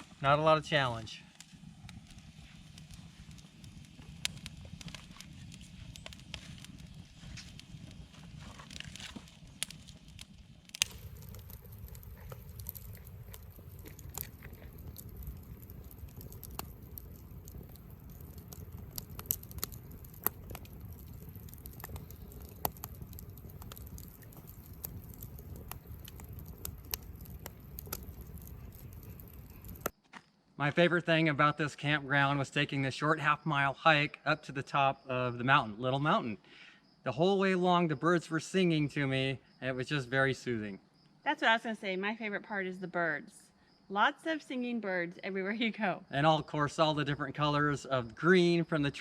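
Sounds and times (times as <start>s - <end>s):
campfire crackling and popping: 0.0s - 30.0s, 46.2s - 49.0s.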